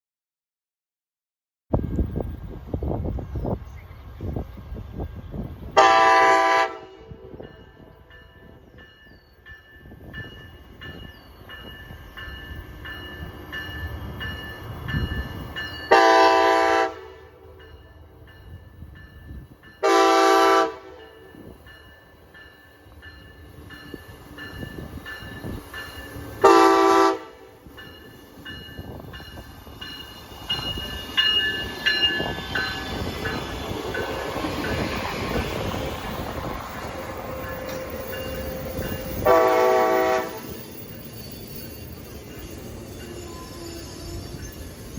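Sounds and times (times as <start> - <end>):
train rumble: 1.7 - 44.9
train wheels and engine noise: 1.7 - 44.9
train horn blasts: 5.8 - 7.4, 15.9 - 17.6, 19.8 - 21.1, 26.4 - 27.7, 37.0 - 40.6.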